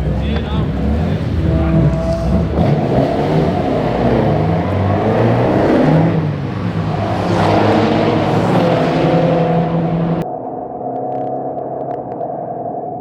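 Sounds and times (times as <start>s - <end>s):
racing car engine revving: 0.0s - 10.2s.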